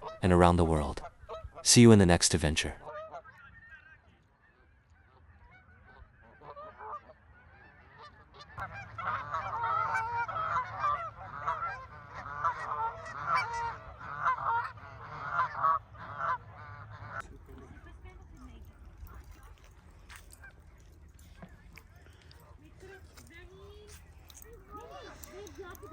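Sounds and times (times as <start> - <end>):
geese honking: 0.0 - 2.0, 2.8 - 25.9.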